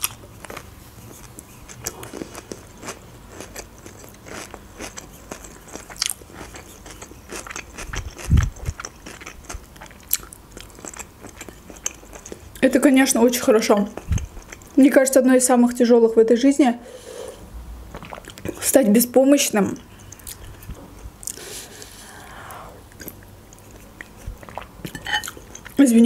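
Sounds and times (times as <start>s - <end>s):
wet chewing clicks: 0.0s - 14.8s, 19.8s - 21.4s, 22.9s - 25.8s.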